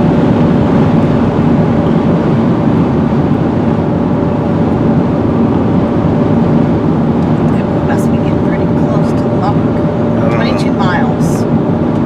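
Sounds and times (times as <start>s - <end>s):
car cabin road noise: 0.0s - 12.0s
faint steady hum: 7.2s - 12.0s.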